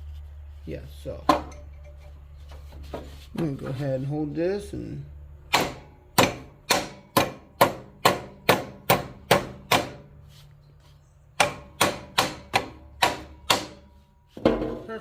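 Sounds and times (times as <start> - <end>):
hammer striking metal: 5.5 - 10.1, 11.4 - 14.8.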